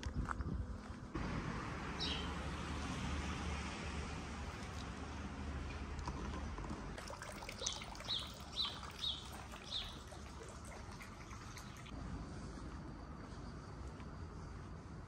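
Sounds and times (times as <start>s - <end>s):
trickle of running water: 7.0s - 12.0s.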